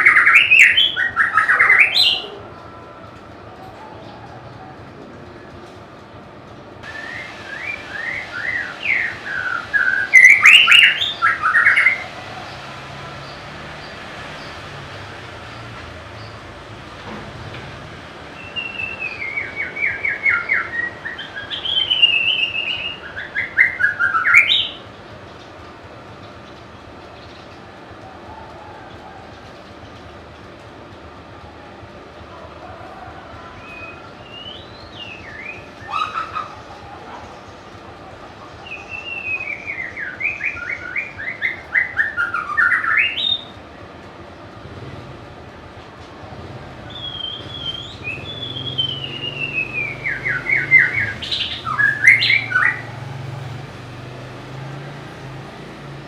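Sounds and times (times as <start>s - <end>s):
bird singing whistled phrases: 0.0s - 2.3s, 6.9s - 12.0s, 18.4s - 24.8s, 33.7s - 36.5s, 38.6s - 43.5s, 46.9s - 52.9s.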